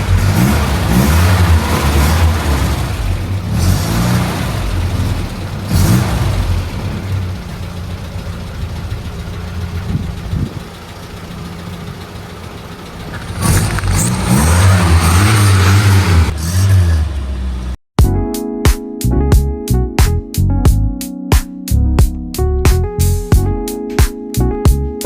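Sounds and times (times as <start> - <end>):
race car engine idling and revving: 0.0 - 17.8.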